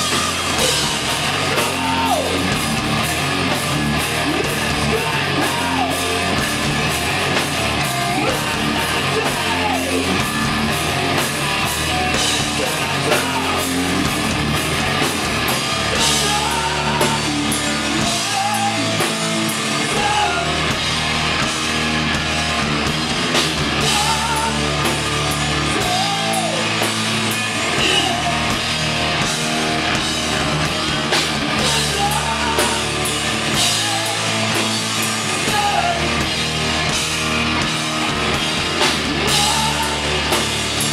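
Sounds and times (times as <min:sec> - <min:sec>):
person singing: 0:00.0 - 0:02.4, 0:04.3 - 0:06.4, 0:08.0 - 0:10.2, 0:12.0 - 0:14.1, 0:15.9 - 0:19.2, 0:23.8 - 0:24.9, 0:25.8 - 0:26.8, 0:31.5 - 0:34.7, 0:39.0 - 0:40.9
drum kit: 0:00.0 - 0:40.9
electric guitar: 0:00.0 - 0:40.9.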